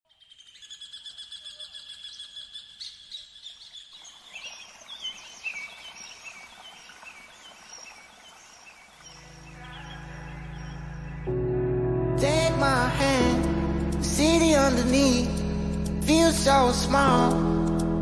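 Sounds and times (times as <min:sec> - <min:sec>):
bird chirping: 0:00.1 - 0:11.4.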